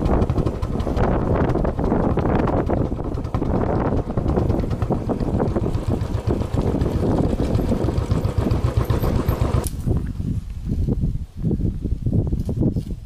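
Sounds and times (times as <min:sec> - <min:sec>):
engine running: 0:00.0 - 0:10.2
wind buffeting microphone: 0:00.0 - 0:13.0.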